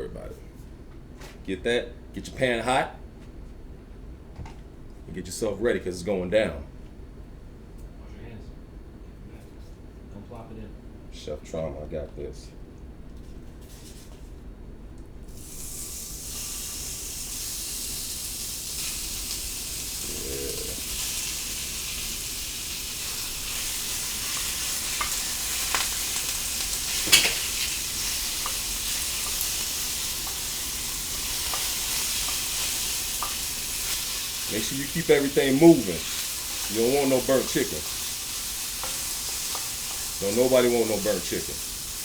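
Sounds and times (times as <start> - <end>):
chicken sizzling in a pan: 15.3 - 42.0.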